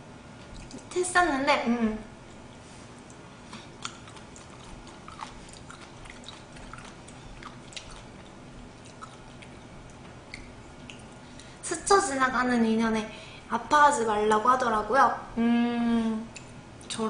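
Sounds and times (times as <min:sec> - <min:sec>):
woman chewing food: 0:00.3 - 0:00.9, 0:02.2 - 0:11.6.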